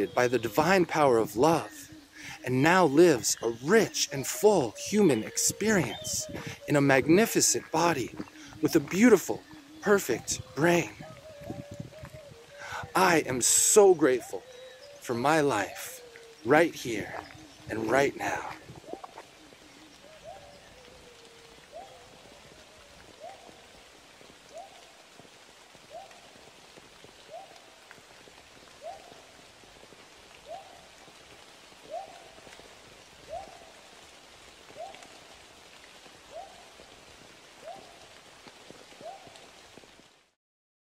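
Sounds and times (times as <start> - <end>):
bird calling a rising note: 0.0 - 23.7
faint forest background hiss: 0.0 - 40.4.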